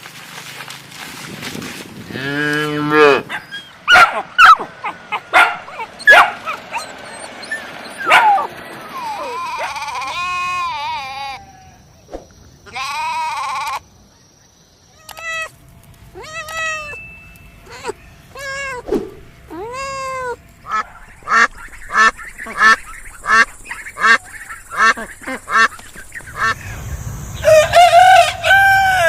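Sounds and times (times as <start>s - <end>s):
sheep and goats bleating: 8.9s - 11.6s, 12.7s - 13.8s.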